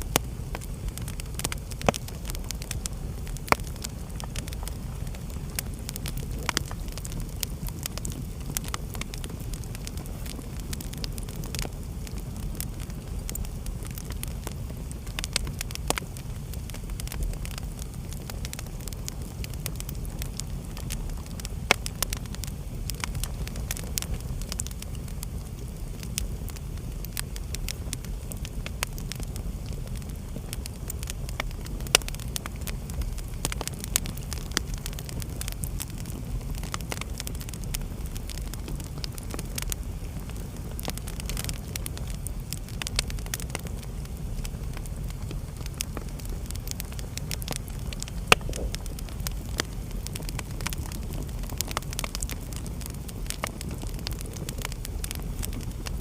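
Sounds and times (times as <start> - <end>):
low rumble of flames: 0.0 - 56.0
wood fire crackling and popping: 0.0 - 56.0.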